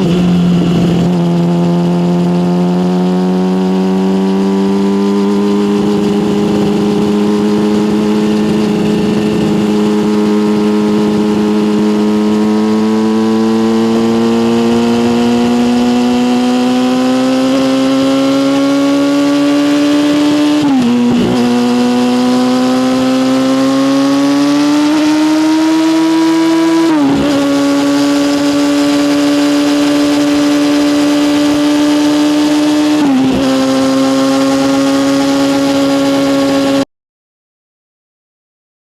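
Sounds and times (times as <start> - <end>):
motorcycle gear upshifts: 0.0 - 36.8
motorcycle engine accelerating: 0.0 - 36.9.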